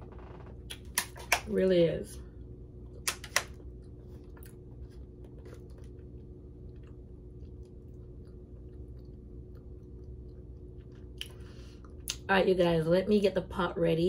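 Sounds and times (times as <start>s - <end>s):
steady low hum: 0.0s - 14.0s
person chewing: 2.8s - 12.2s.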